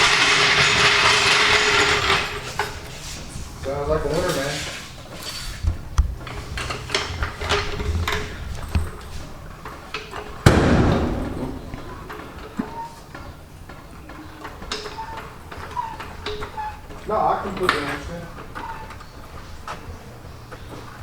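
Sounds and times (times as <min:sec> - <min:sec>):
loud ringing bang: 0:10.4 - 0:12.4.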